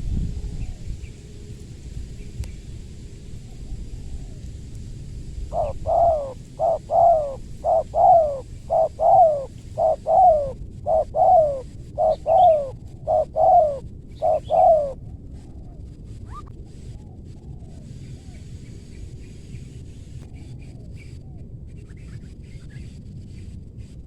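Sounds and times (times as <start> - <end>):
dove cooing: 5.5 - 18.5.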